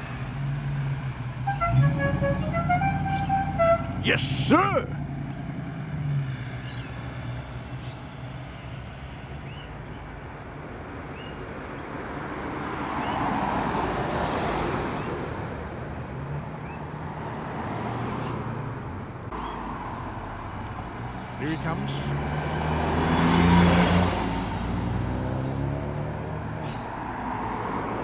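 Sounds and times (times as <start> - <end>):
car engines rumbling: 0.0 - 28.0
car driving past: 17.2 - 28.0.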